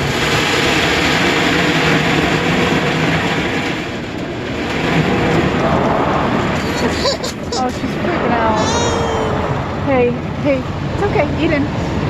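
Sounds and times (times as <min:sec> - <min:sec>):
car wash water spray and machinery: 0:00.0 - 0:06.6.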